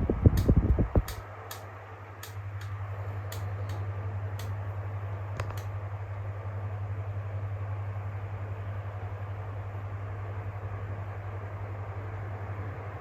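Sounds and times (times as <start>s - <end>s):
fan oscillation mechanism clicking: 0.0s - 5.8s
electric fan motor hum: 0.0s - 13.0s.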